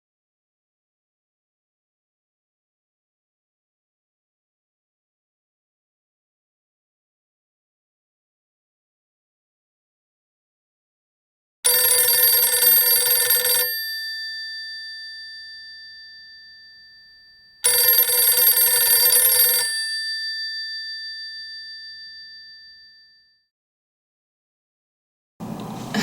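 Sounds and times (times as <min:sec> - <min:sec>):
telephone bell ringing: 0:11.7 - 0:23.4.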